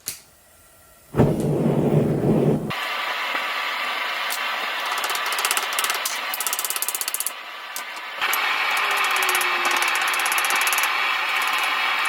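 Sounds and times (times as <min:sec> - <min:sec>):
propane burner rushing: 0:01.0 - 0:05.9.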